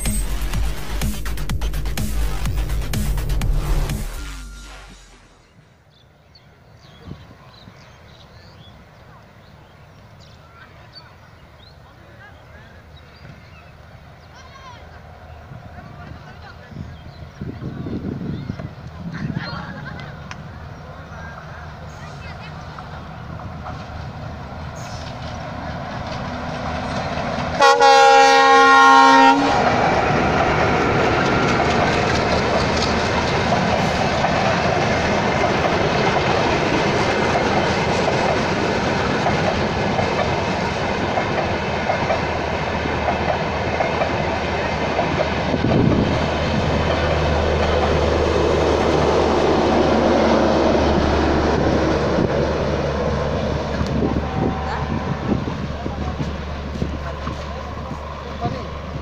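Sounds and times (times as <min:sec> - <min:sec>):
train coaches rumbling by: 0:00.0 - 0:59.0
train horn blast: 0:27.5 - 0:30.2, 0:53.7 - 0:56.1.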